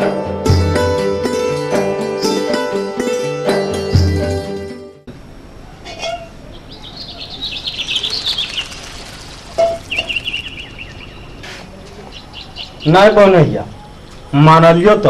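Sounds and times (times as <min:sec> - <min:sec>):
birds chirping: 0:05.5 - 0:15.0.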